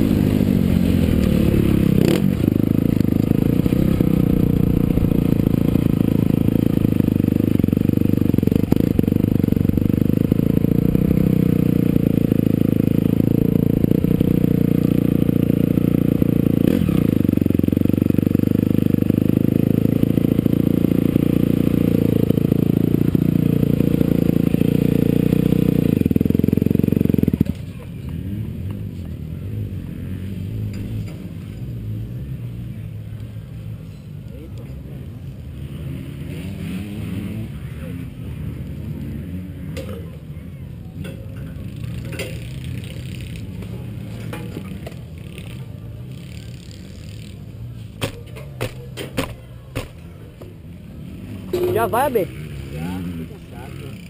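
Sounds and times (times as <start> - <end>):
motocross engine running: 0.0 - 27.7, 51.3 - 54.0.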